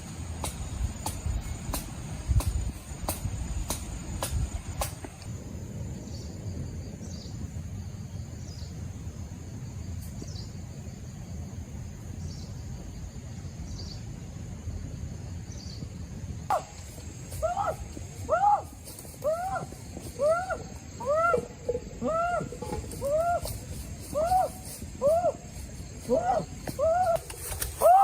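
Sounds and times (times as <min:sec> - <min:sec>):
high insect drone: 0:00.0 - 0:28.0.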